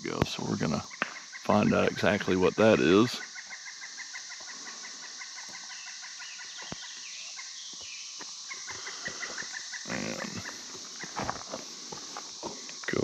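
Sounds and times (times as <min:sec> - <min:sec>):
high insect buzz: 0:00.0 - 0:13.0
short repeated animal calls: 0:08.4 - 0:11.3.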